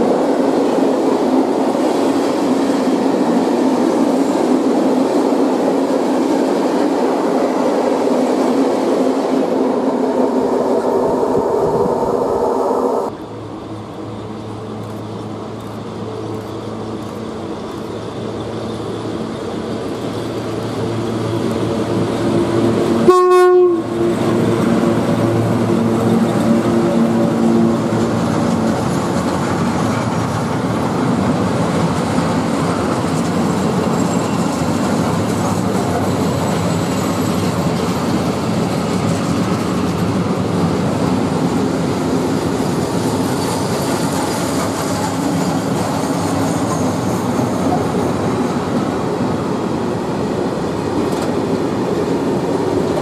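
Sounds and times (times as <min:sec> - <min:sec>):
approaching train hum: 0:00.0 - 0:53.0
train wheels on rails: 0:00.0 - 0:53.0
train horn blast: 0:22.9 - 0:25.2.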